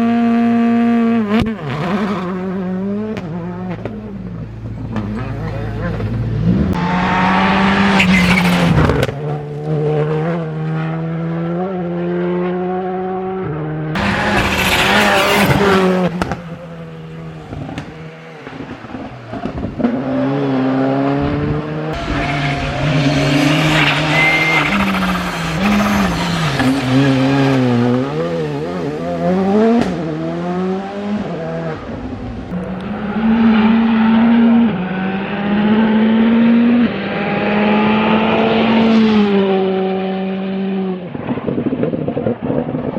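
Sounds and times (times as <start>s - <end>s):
rally car engine revving: 0.0s - 42.9s
tyre noise burst: 22.0s - 28.9s.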